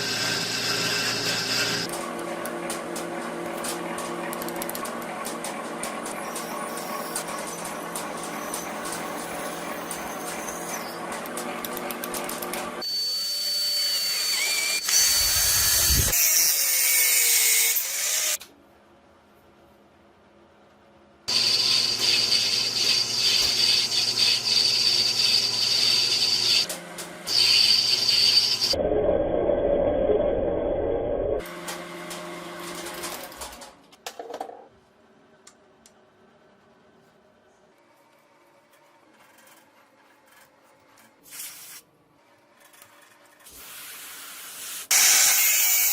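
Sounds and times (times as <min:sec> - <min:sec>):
power tool running: 0:12.8 - 0:18.4, 0:21.3 - 0:28.8.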